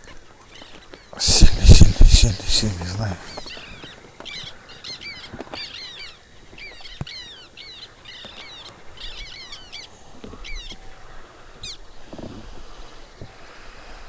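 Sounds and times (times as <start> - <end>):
songbird singing: 0.0 - 13.2.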